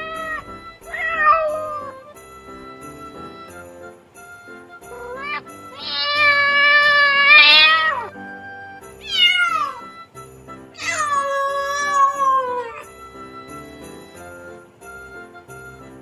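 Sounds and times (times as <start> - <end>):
cat meowing: 0.0 - 2.2, 4.9 - 8.2, 9.0 - 10.0, 10.8 - 13.0
light background music: 0.0 - 16.0.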